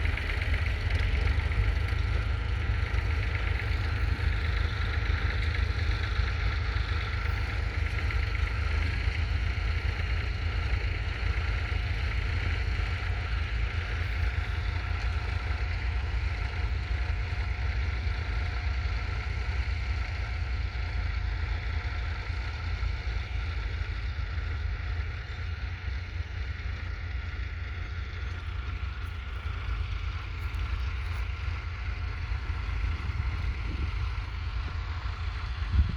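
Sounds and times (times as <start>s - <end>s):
tractor diesel engine running: 0.0s - 35.9s
wind buffeting microphone: 32.0s - 35.9s.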